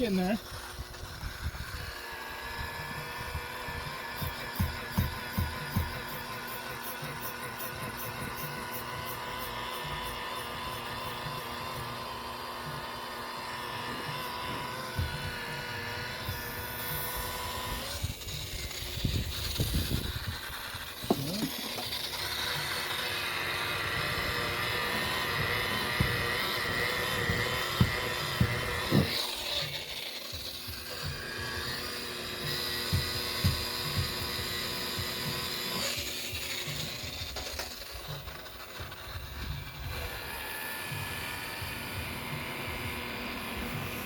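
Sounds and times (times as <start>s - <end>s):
rotary buffer whining: 0.0s - 44.0s
knocks and bumps: 4.2s - 6.1s, 24.8s - 29.2s.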